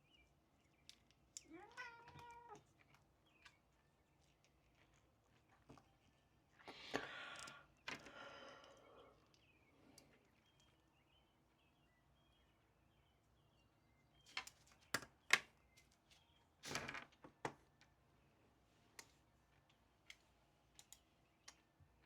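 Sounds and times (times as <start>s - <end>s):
faint bird chirps: 7.5s - 14.5s
light clicks and taps: 18.9s - 21.8s.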